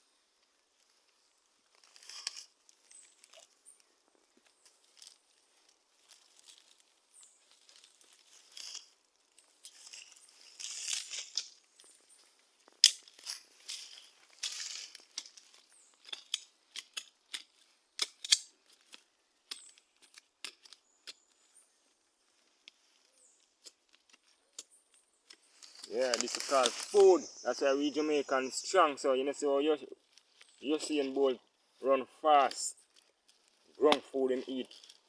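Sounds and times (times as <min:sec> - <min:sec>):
dry rustling and crackling: 0:00.4 - 0:35.0
sharp snaps and clicks: 0:12.7 - 0:21.2.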